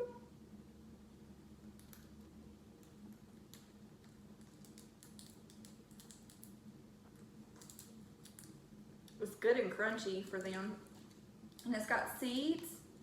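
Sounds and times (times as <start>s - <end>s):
low room hum: 0.0s - 13.0s
parrots chewing crunchy treat: 2.7s - 9.2s.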